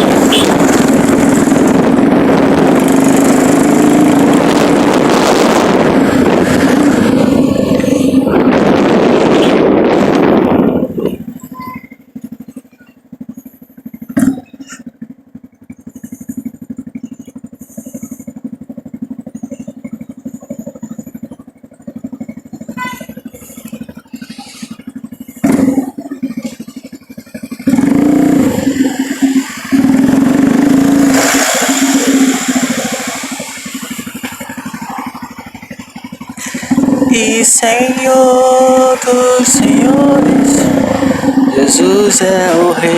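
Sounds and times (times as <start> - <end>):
rushing noise: 0.0 - 11.4, 27.7 - 35.6, 36.3 - 42.9
vehicle engine running: 0.0 - 42.9.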